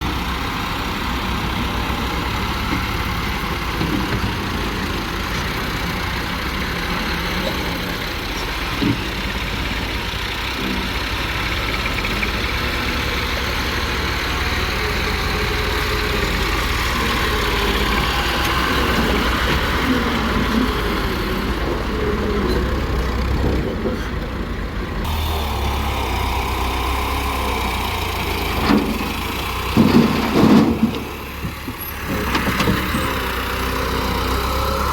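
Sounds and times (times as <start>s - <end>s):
diesel engines running: 0.0s - 34.9s.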